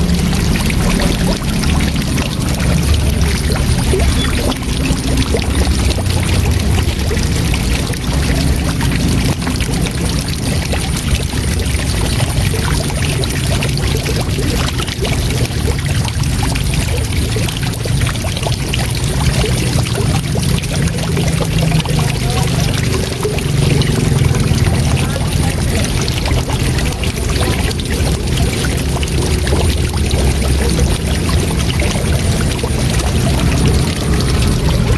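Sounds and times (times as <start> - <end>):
waterfall rushing: 0.0 - 15.4, 16.0 - 34.9.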